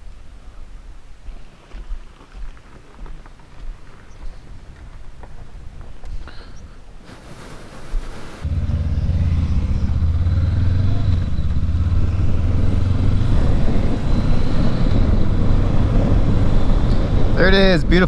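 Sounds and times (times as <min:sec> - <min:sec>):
motorcycle engine running: 0:08.4 - 0:17.4.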